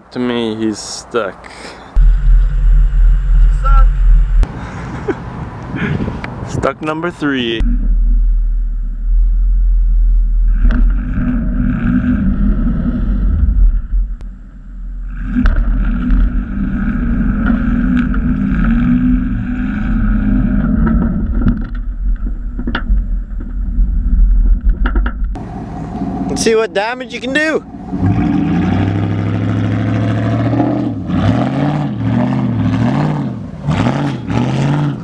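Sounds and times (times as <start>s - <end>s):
pickup truck engine revving: 7.6s - 13.6s, 14.9s - 21.5s, 25.4s - 35.0s.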